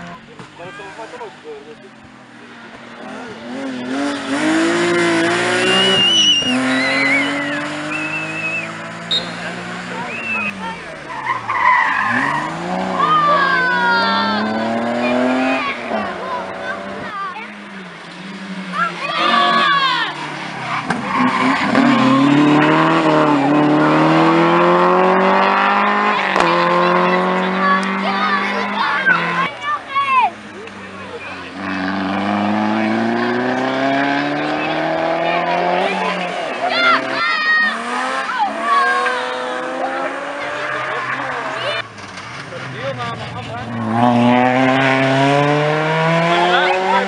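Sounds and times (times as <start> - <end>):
rally car engine revving: 0.0 - 47.0
tyres squealing: 3.9 - 16.7, 18.2 - 30.3.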